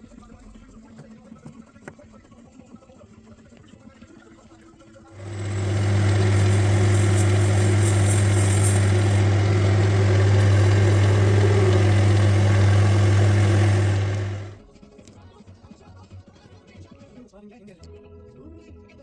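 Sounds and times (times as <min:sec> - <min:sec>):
workshop machine humming: 0:05.2 - 0:14.6.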